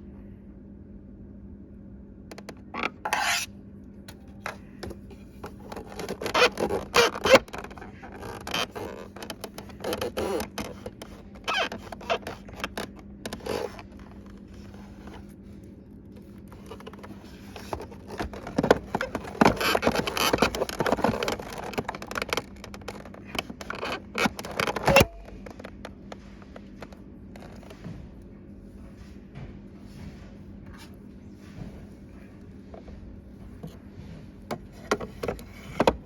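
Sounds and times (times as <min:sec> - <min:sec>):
faint steady hum: 0:00.0 - 0:36.0
scraping and clicking of parts: 0:02.3 - 0:03.5, 0:04.2 - 0:15.4, 0:16.2 - 0:27.8, 0:34.5 - 0:36.0.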